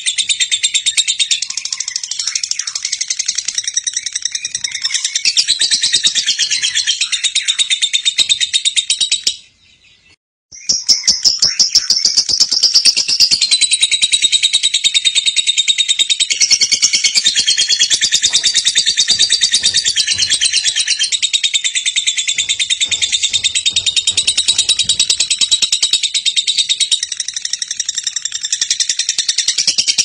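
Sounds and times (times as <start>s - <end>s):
lovebird rattling chatter: 16.4s - 29.7s.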